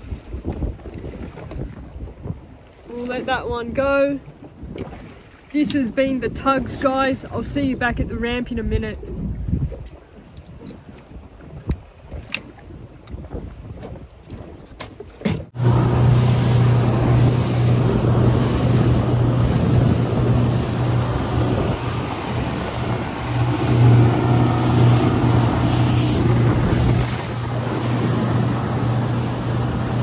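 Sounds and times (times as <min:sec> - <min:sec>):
water and wind noise: 0:00.0 - 0:30.0
outboard motor running: 0:15.5 - 0:30.0.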